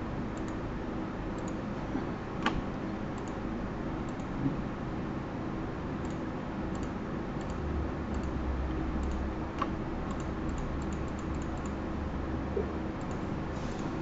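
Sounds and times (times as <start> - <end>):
steady low hum: 0.0 - 14.0
keyboard and mouse clicks: 1.4 - 1.6, 3.2 - 3.4, 4.1 - 4.4, 6.0 - 8.4, 9.0 - 11.8, 13.0 - 13.3.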